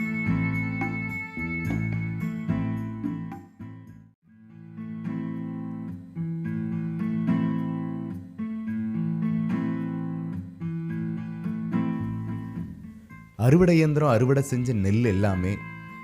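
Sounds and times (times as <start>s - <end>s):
guitar playing chords: 0.0s - 16.0s.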